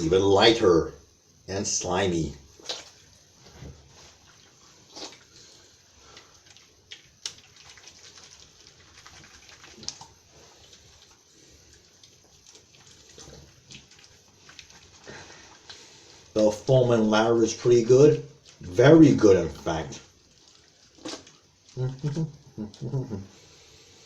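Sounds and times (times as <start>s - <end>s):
soapy hands rubbing: 1.9s - 22.5s
small wet clicks: 4.2s - 16.4s.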